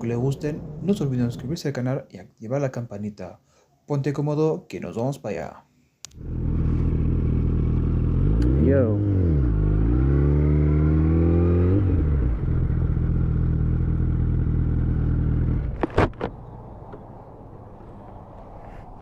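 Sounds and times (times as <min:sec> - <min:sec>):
motorcycle engine revving: 0:06.2 - 0:15.8.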